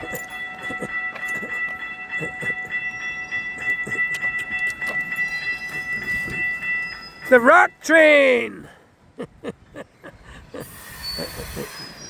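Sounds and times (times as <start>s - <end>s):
high-pitched ringing tone: 0.0s - 7.8s.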